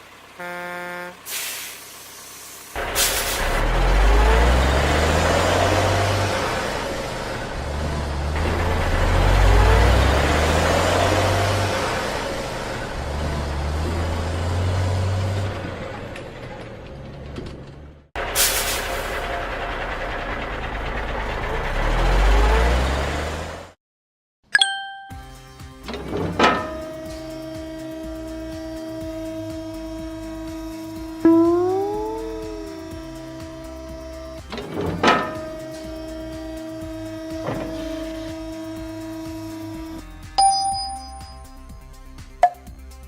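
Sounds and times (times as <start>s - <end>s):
cartoon truck engine rumbling: 0.0s - 23.8s, 24.6s - 43.0s
sharp ding: 24.6s - 25.4s, 31.3s - 32.8s, 40.4s - 41.6s, 42.4s - 42.7s
background music: 24.6s - 43.0s.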